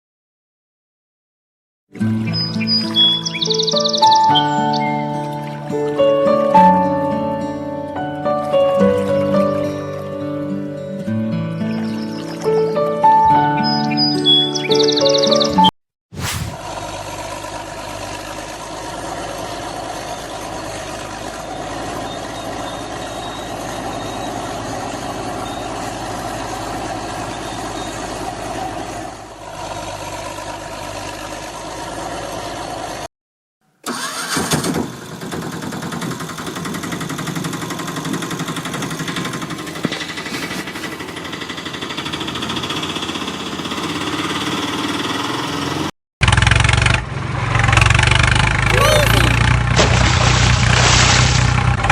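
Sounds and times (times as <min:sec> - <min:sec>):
engine running steadily: 0:16.2 - 0:33.1, 0:34.4 - 0:51.9.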